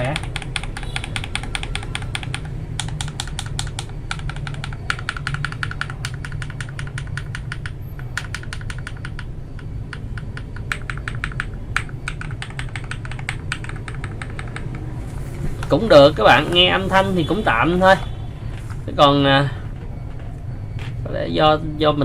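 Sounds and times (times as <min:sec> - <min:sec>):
fast typing on mechanical keyboard: 0:00.0 - 0:15.8.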